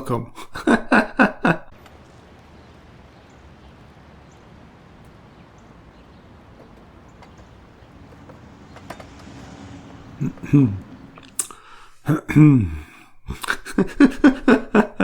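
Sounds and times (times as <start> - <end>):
faint background noise: 0.0 - 15.0
faint clicks: 1.7 - 10.1, 10.8 - 11.9.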